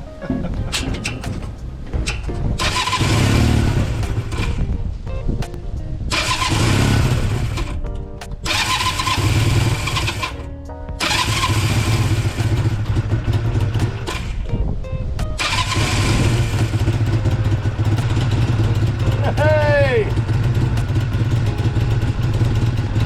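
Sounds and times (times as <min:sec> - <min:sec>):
background music: 0:00.0 - 0:23.0
motorcycle starter cranking engine: 0:02.1 - 0:04.6, 0:06.1 - 0:07.8, 0:08.4 - 0:14.5, 0:15.4 - 0:23.0.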